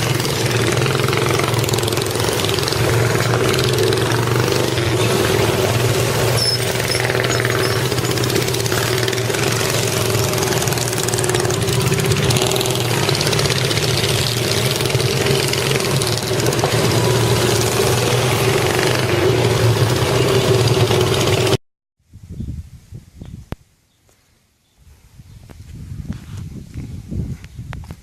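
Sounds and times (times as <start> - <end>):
engine running steadily: 0.0 - 21.6.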